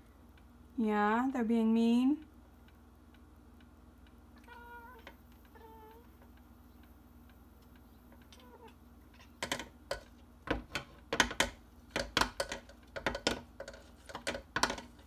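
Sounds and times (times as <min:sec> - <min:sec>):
sharp clicks and knocks: 0:09.2 - 0:15.0.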